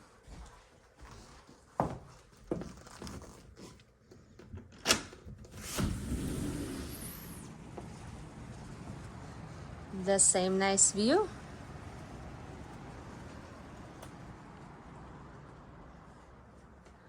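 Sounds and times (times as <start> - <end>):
steady outdoor noise: 6.9 - 17.0.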